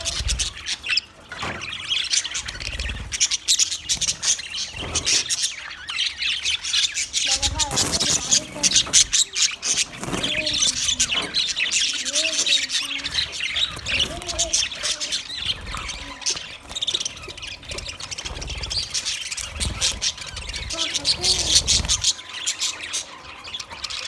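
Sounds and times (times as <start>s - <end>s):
budgerigars chattering and squawking: 0.0s - 24.0s.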